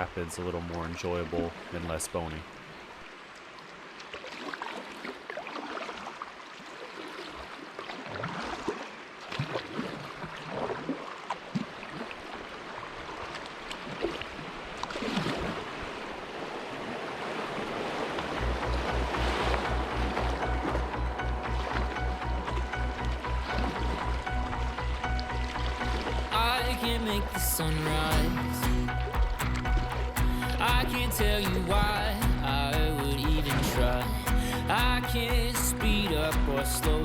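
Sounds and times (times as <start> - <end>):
river water rushing and splashing: 0.0 - 37.0
water gurgles: 0.0 - 37.0
steady musical beat: 18.5 - 37.0.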